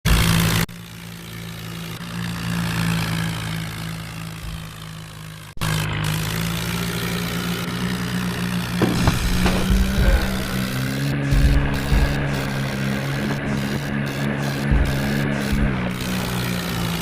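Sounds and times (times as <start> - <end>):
tractor engine running: 0.1 - 17.0.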